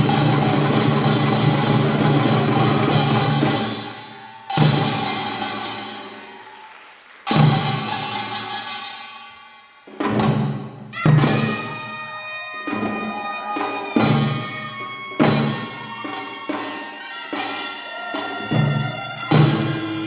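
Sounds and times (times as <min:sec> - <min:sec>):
percussion strokes with drum thud: 0:00.0 - 0:06.1, 0:10.0 - 0:20.0
reedy double-reed wind melody: 0:11.0 - 0:20.0.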